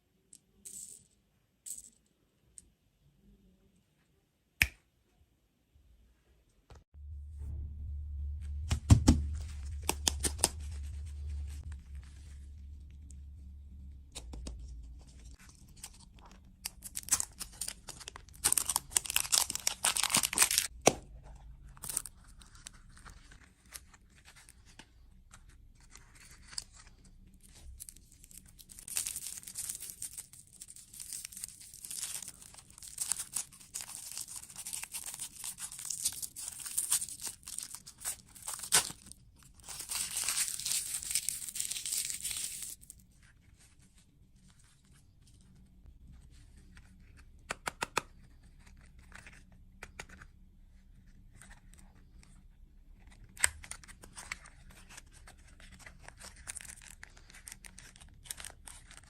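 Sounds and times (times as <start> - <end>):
food wrappers crinkling and tearing: 14.6 - 20.7, 25.8 - 43.0, 53.1 - 59.0.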